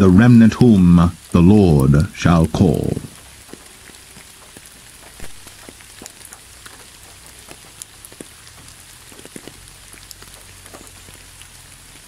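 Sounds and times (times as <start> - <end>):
raindrops ticking close by: 0.0 - 12.0
steady rain: 0.0 - 12.0.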